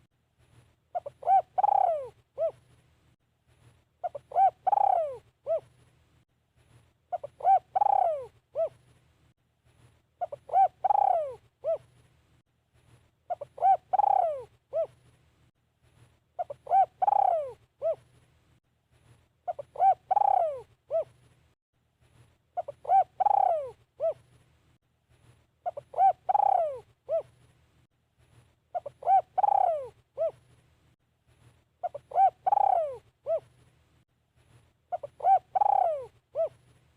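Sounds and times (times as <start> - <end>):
dove cooing: 0.9 - 2.6, 4.0 - 5.8, 7.1 - 8.8, 10.2 - 11.9, 13.3 - 15.0, 16.4 - 18.1, 19.5 - 21.2, 22.6 - 24.3, 25.6 - 27.4, 28.7 - 30.5, 31.8 - 33.5, 34.9 - 36.6.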